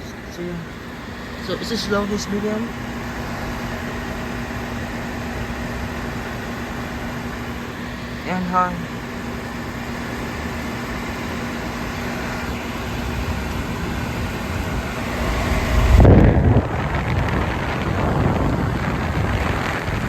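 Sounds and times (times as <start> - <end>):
air conditioner fan rushing: 0.0 - 20.0
wind buffeting microphone: 11.5 - 20.0.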